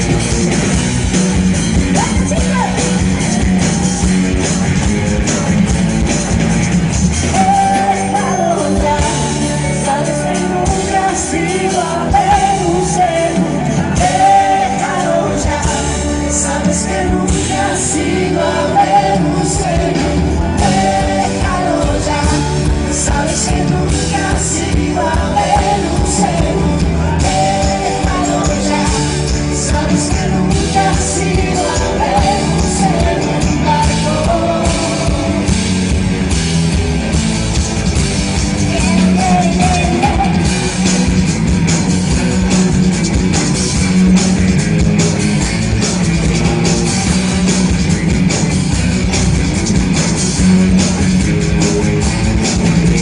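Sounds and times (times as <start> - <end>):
pop-rock band playing live: 0.0 - 53.0
person singing: 7.3 - 35.8, 38.6 - 40.9.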